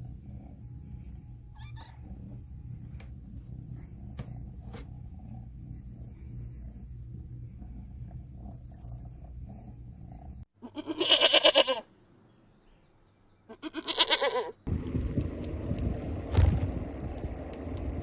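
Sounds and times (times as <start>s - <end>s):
goat bleating: 10.6s - 11.9s, 13.5s - 14.6s
low rumble: 14.7s - 18.0s.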